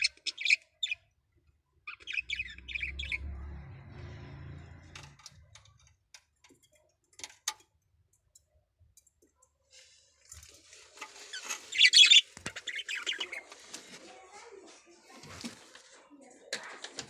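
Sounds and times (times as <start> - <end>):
scratchy bird call: 11.3 - 13.5.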